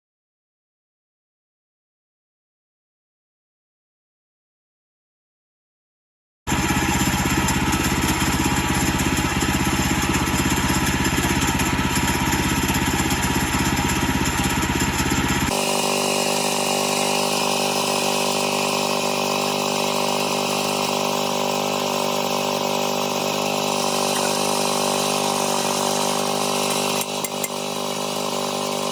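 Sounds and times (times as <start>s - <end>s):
engine running steadily: 6.5s - 28.9s.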